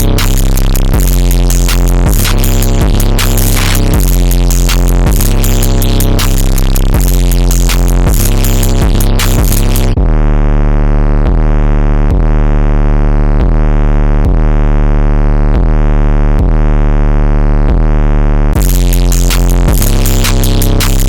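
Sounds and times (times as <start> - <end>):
drum beat: 0.0 - 10.2, 18.6 - 21.0
heavy synth bass: 0.0 - 21.0.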